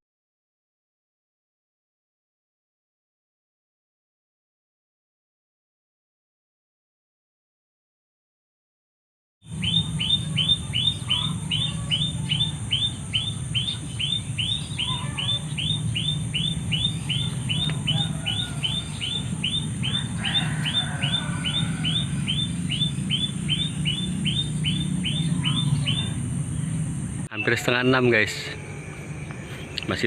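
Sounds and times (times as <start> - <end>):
bird chirping: 9.5 - 30.0.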